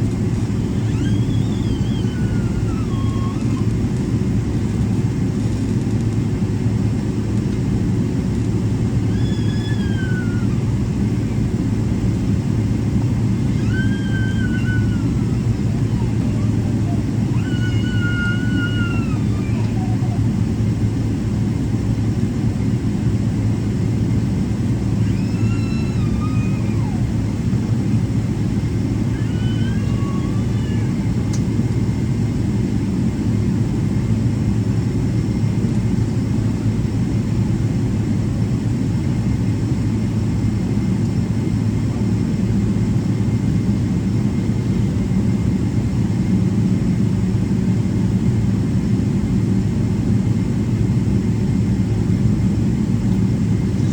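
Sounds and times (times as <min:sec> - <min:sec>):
airplane cabin rumble: 0:00.0 - 0:53.9.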